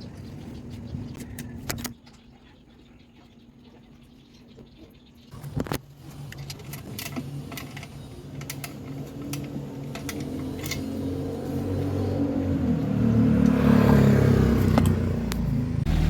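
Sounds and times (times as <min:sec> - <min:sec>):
car engine cranking and idling: 0:05.4 - 0:16.0.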